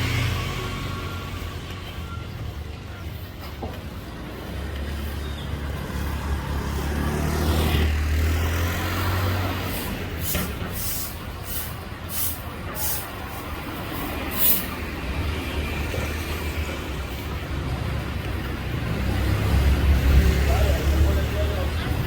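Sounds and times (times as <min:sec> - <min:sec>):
large vehicle engine rumbling: 0:00.0 - 0:22.0
short hissing bursts: 0:09.7 - 0:13.4, 0:14.0 - 0:14.8.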